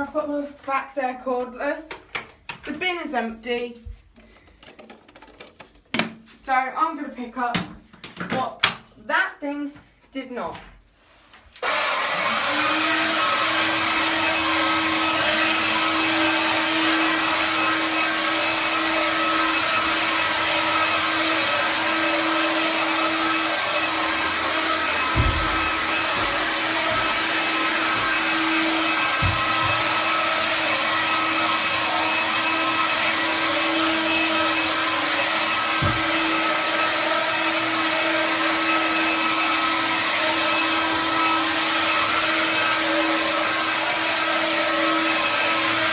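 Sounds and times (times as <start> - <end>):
vacuum cleaner motor whining: 11.6 - 45.9
dull knocks: 25.0 - 27.1, 29.1 - 29.9.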